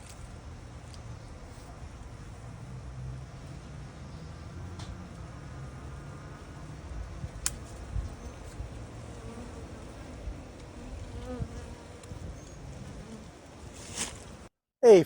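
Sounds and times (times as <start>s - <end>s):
bees buzzing: 5.3s - 14.4s.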